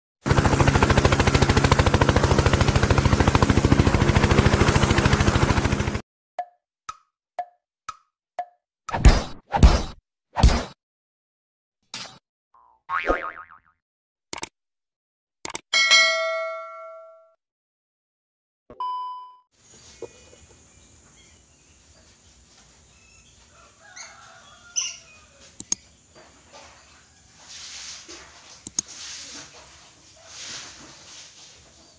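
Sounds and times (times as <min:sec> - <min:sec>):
loud rapid pulsing: 0:00.2 - 0:06.0
sharp clicks: 0:14.3 - 0:14.5, 0:15.4 - 0:15.6, 0:25.6 - 0:25.8.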